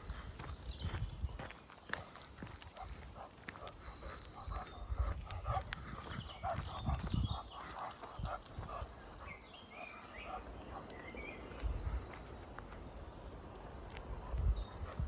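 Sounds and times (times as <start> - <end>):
footsteps walking: 0.0 - 4.8.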